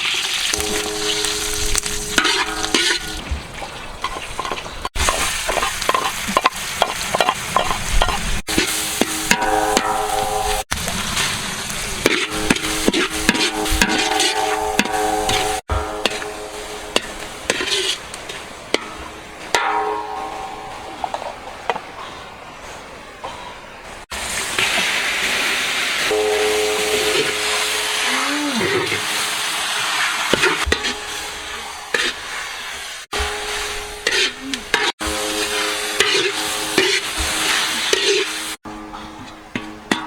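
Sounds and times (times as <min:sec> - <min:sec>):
food sizzling in a pan: 0:00.0 - 0:03.3, 0:04.1 - 0:20.2, 0:24.1 - 0:38.6
stirring scrape in a pan: 0:12.0 - 0:18.9, 0:29.0 - 0:38.6.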